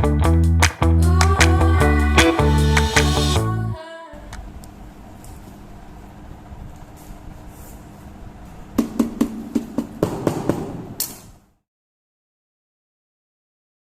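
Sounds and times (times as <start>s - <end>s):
low workshop hum: 0.9s - 10.0s
sharp knocks: 8.8s - 11.2s.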